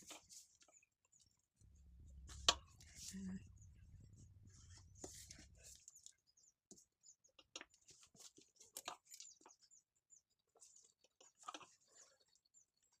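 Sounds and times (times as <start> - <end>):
faint scratching: 1.6 - 6.1.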